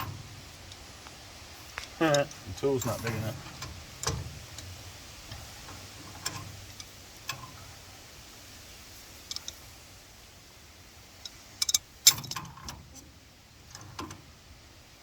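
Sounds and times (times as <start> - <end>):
wrench clicking on steel pipe: 11.2 - 12.8.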